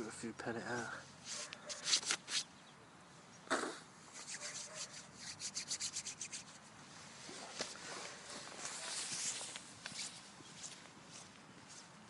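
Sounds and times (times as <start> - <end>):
scratchy rubbing strokes: 1.2 - 2.5, 4.1 - 12.0.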